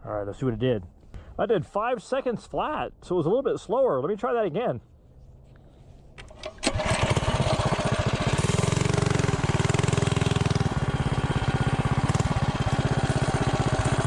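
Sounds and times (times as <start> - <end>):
engine clicks: 6.2 - 14.0
mini bike engine idling: 6.4 - 14.0.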